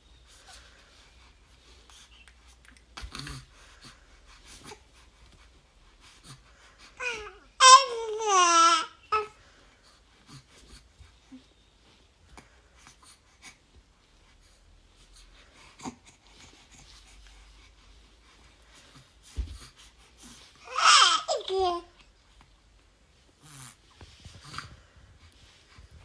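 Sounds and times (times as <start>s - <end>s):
faint baby vocal sounds: 0.3s - 11.5s, 18.7s - 22.5s
baby cooing: 7.0s - 9.3s, 20.7s - 21.9s.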